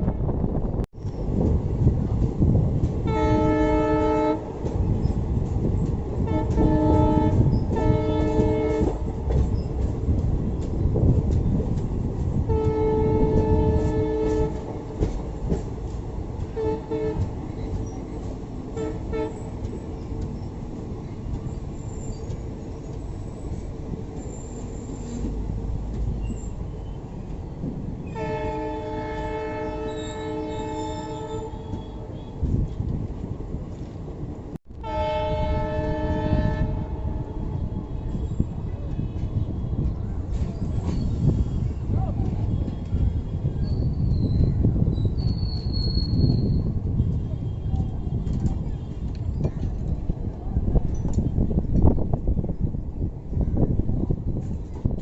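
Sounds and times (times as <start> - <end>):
moving train rumble and rattle: 0.0 - 55.0
train horn blasts: 3.0 - 4.5, 6.2 - 9.2, 12.4 - 14.7, 16.5 - 17.4, 18.7 - 19.5, 28.1 - 32.5, 34.8 - 40.0.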